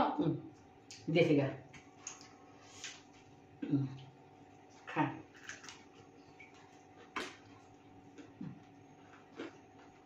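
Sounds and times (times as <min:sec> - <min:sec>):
people chewing: 0:04.7 - 0:10.0.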